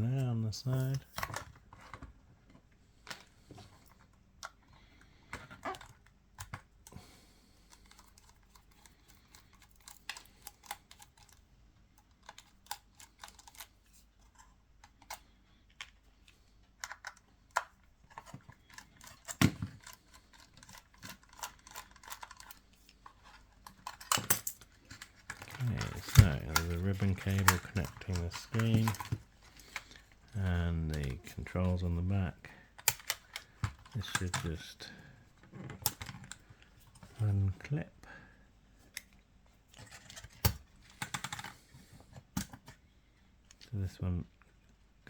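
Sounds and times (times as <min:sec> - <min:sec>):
small tools and parts clicking: 0:07.6 - 0:31.3, 0:32.8 - 0:34.7, 0:39.8 - 0:41.6.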